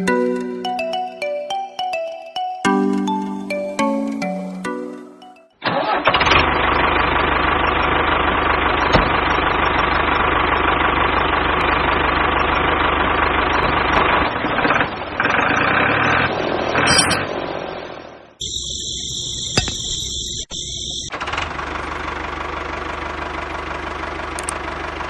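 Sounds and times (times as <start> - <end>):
chime-like musical jingle: 0.0 - 5.6
toy diesel engine running: 5.8 - 14.2, 18.4 - 25.0.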